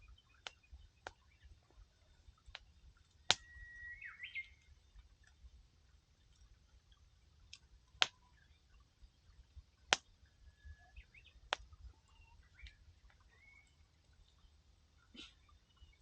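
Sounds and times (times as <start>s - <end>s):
faint bird chirps: 0.0s - 5.0s, 10.2s - 16.0s
firewood crackling and popping: 0.4s - 3.6s, 7.4s - 8.2s, 9.8s - 10.2s, 11.4s - 11.8s.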